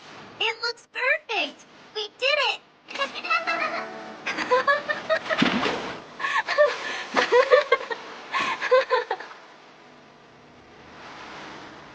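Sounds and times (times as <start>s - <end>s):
high-pitched voices giggling: 2.9s - 5.4s, 6.4s - 9.4s.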